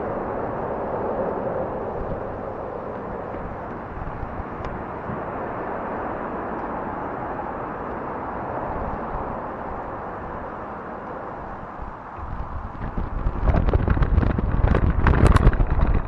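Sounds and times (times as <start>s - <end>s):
bike tyres rolling over trail: 0.0s - 16.0s
wind on microphone: 0.0s - 16.0s.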